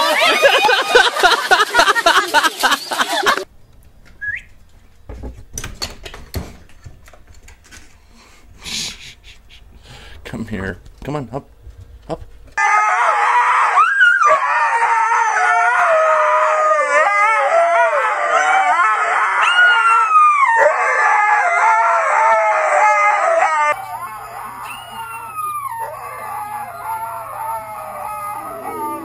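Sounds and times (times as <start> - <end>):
dogs howling: 12.6 - 29.0.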